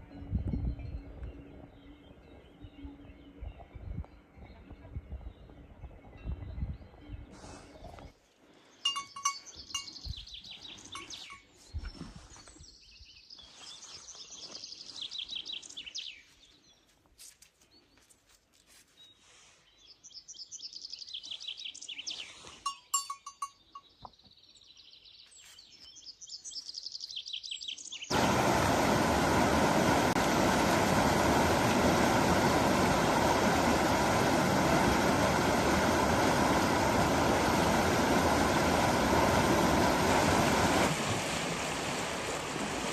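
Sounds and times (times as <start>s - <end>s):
birds chirping in trills: 0.1s - 16.9s
loud steady rushing noise: 28.1s - 42.9s.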